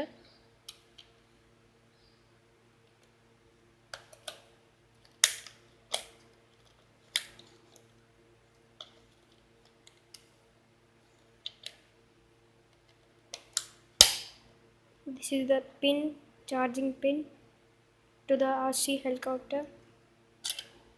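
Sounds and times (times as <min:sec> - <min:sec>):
faint steady hum: 0:00.0 - 0:20.9.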